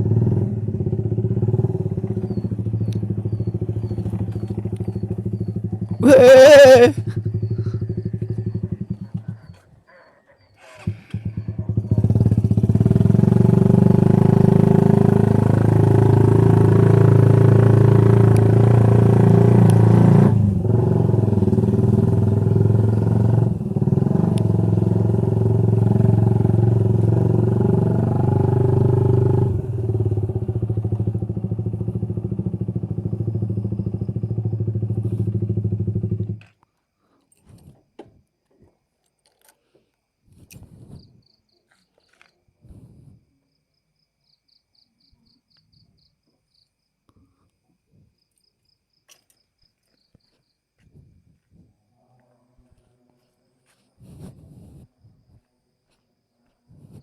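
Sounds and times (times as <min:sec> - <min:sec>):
motorcycle engine running: 0:00.0 - 0:09.6, 0:10.8 - 0:36.6.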